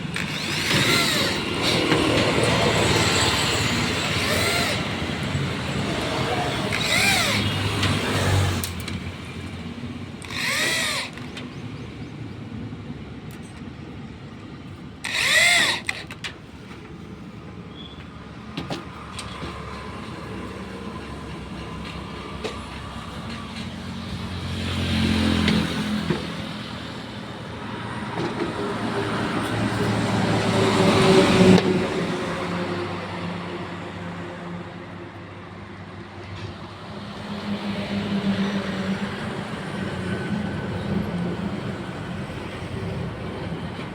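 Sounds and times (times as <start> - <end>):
electric drill driving screws: 0.0 - 9.1, 10.1 - 11.7, 15.0 - 16.4
road traffic: 0.0 - 43.9
vehicle passing: 23.9 - 26.8.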